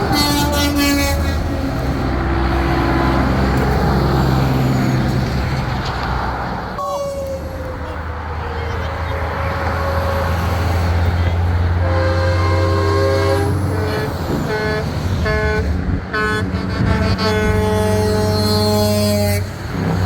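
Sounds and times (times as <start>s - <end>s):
truck air horn blasts: 0.0s - 1.6s, 6.8s - 19.9s
diesel truck engines rumbling: 0.0s - 20.0s.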